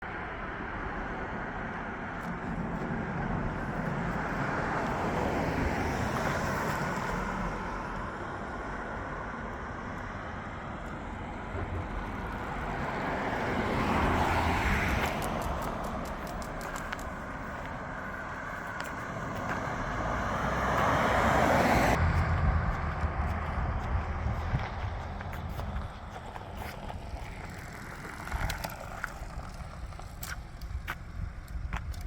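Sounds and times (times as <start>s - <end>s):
vehicles passing on road: 0.0s - 32.0s.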